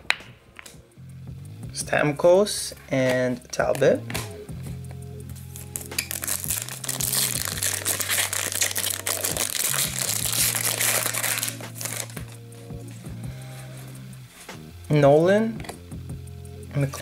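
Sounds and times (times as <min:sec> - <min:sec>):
background music with bass line: 0:00.7 - 0:17.0
wrapper crinkling: 0:05.6 - 0:12.3.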